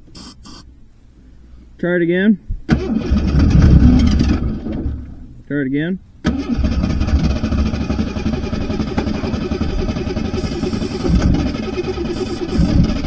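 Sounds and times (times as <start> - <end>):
rough running car engine: 6.5 - 13.0.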